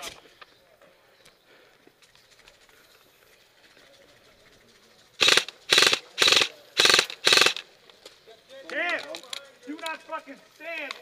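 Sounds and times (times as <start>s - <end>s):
airsoft gun full-auto bursts: 5.2s - 7.7s.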